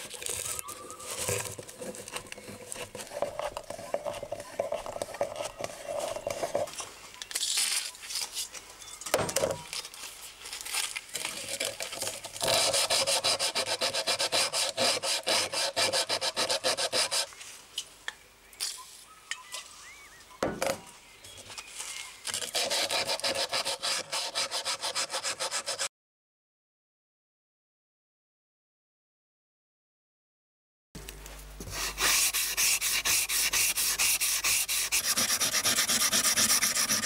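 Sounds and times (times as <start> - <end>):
rubbing strokes on knife parts: 31.6 - 37.0.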